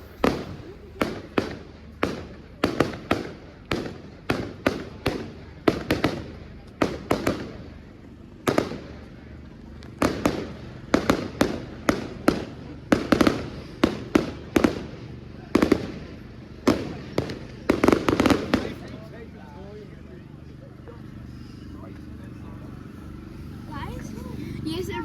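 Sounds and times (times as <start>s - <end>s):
fireworks bangs echoing: 0.0s - 7.8s, 8.4s - 9.0s, 9.8s - 18.9s.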